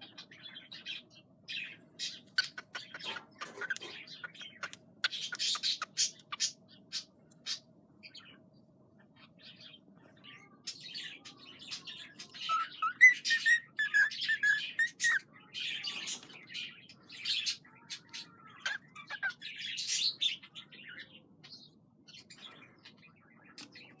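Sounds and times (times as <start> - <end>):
cockatiel chirping: 2.0 - 6.6, 12.3 - 15.2, 18.5 - 20.2.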